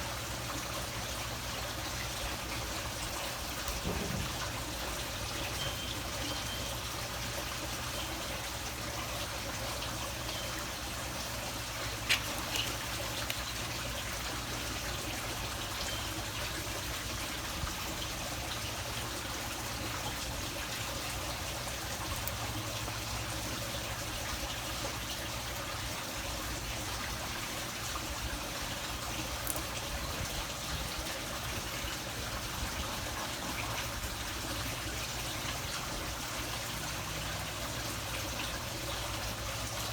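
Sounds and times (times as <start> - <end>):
trickling water: 0.0 - 39.9.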